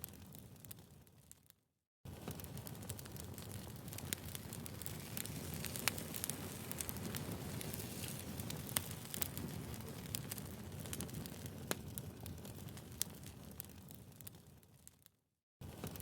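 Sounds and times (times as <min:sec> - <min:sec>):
flames rushing: 0:02.2 - 0:13.8
firewood popping and snapping: 0:02.3 - 0:13.9.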